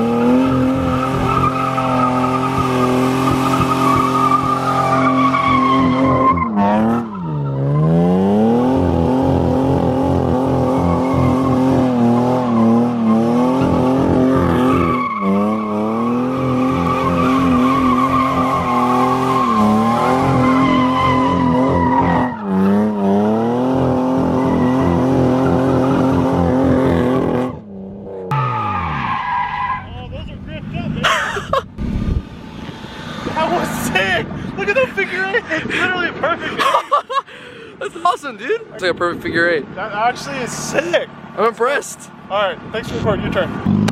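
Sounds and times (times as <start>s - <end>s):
car engine at high revs: 0.0s - 29.4s, 30.7s - 34.6s, 42.1s - 43.9s
tyres squealing: 0.1s - 8.0s, 14.4s - 23.5s, 28.4s - 30.1s.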